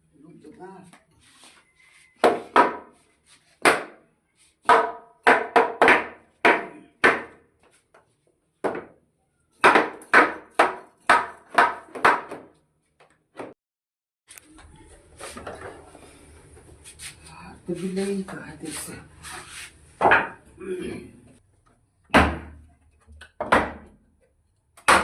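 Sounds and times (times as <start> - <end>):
hammer striking wood: 2.2 - 2.9, 3.6 - 4.0, 4.6 - 7.4, 8.6 - 8.9, 9.6 - 12.5, 22.1 - 22.6, 23.4 - 24.0, 24.8 - 25.0.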